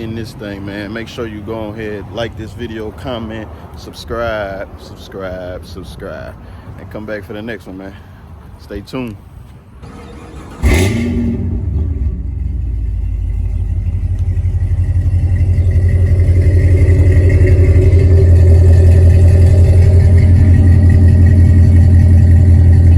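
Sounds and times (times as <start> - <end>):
car engine idling: 9.6 - 22.9.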